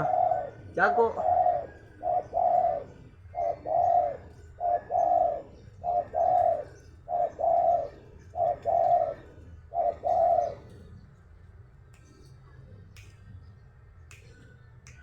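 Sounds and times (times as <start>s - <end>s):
dove cooing: 0.0s - 11.2s.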